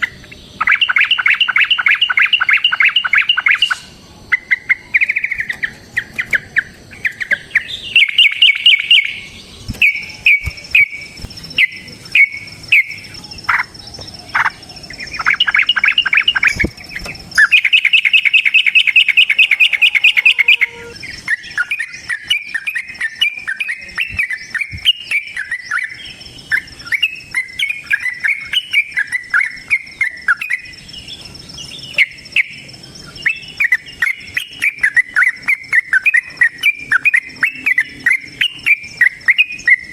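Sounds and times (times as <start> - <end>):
bird chattering calls: 0.0 - 25.9.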